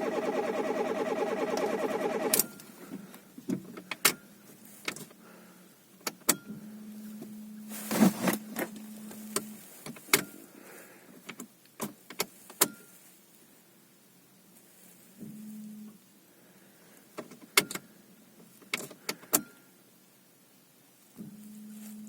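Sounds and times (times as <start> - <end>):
low electric hum: 6.6 - 9.8.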